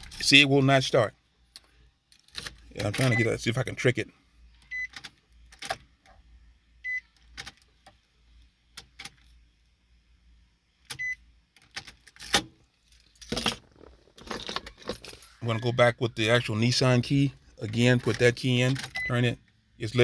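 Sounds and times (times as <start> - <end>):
key clicking and jangling in ignition: 0.0 - 0.4, 1.5 - 3.2, 11.6 - 15.6, 17.6 - 19.6.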